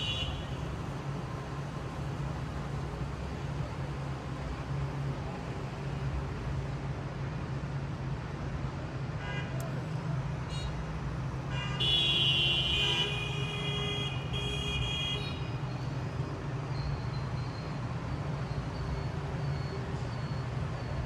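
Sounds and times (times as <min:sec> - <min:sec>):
vehicle horn: 0:00.0 - 0:00.6, 0:11.5 - 0:15.5
city traffic rumble: 0:00.0 - 0:21.0.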